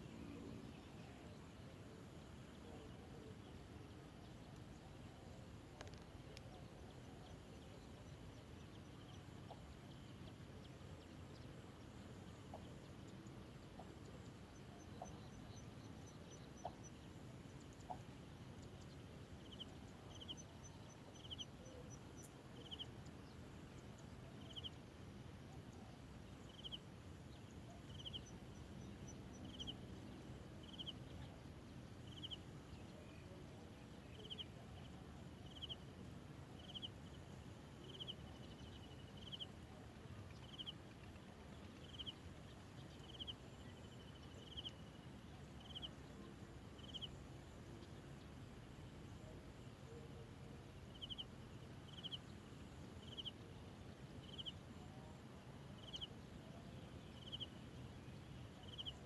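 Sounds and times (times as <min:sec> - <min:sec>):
low outdoor hiss: 0:00.0 - 0:59.0
bird chirps: 0:27.7 - 0:29.8, 0:30.6 - 0:31.2, 0:34.1 - 0:34.5, 0:41.7 - 0:42.2, 0:42.9 - 0:44.9, 0:46.8 - 0:47.2, 0:50.9 - 0:51.3, 0:51.9 - 0:52.2, 0:53.0 - 0:53.4, 0:54.2 - 0:54.6, 0:55.8 - 0:56.1, 0:57.0 - 0:57.5, 0:58.6 - 0:59.0.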